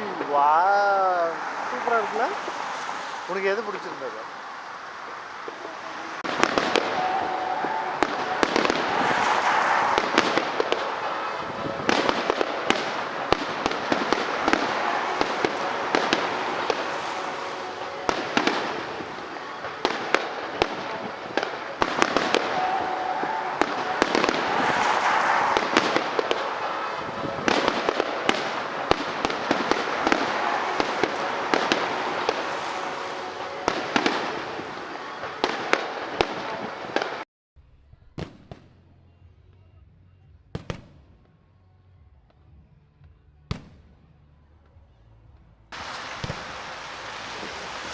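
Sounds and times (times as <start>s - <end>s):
fireworks bangs and crackling: 0.0s - 37.2s, 38.2s - 38.8s, 40.5s - 41.4s, 43.5s - 44.8s, 45.4s - 47.9s
rushing hiss: 45.8s - 47.9s.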